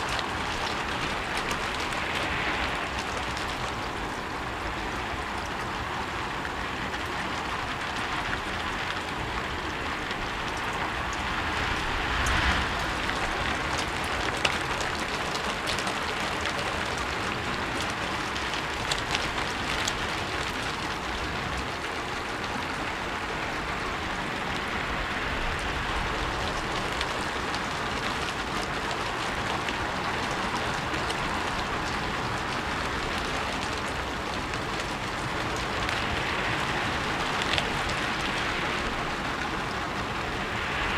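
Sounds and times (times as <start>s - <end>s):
rain on a rooftop: 0.0s - 40.9s.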